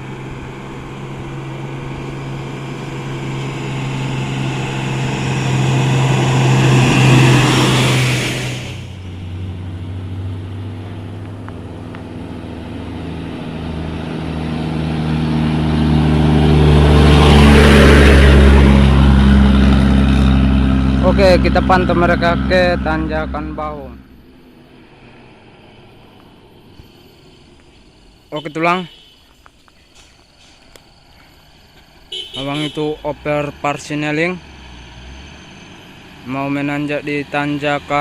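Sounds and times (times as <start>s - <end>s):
heavy truck diesel engines passing: 0.0s - 38.0s.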